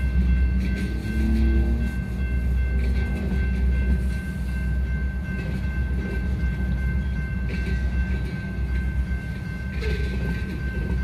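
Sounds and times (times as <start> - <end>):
freight train wheels rumbling: 0.0 - 11.0
wheel clacks on rail: 0.0 - 11.0.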